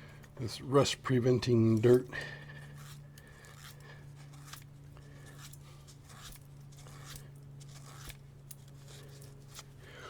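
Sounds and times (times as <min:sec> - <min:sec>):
steady low hum: 0:00.0 - 0:10.0
scraping and rubbing strokes: 0:02.6 - 0:10.0.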